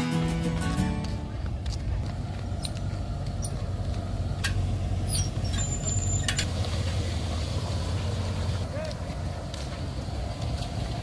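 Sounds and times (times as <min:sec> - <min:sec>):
brief high squeak: 0:05.1 - 0:06.4.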